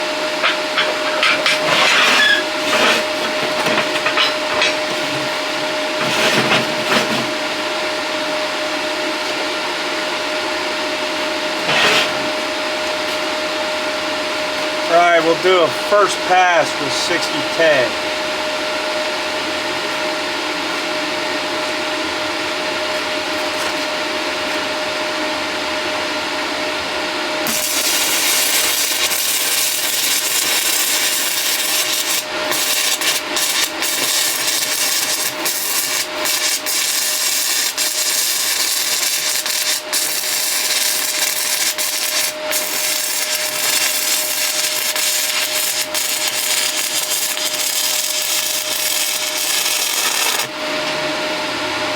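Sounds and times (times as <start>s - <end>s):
welder humming: 0.0s - 8.0s, 11.1s - 20.0s, 27.4s - 51.6s
welding arc crackling and sizzling: 6.0s - 6.9s, 27.4s - 50.6s.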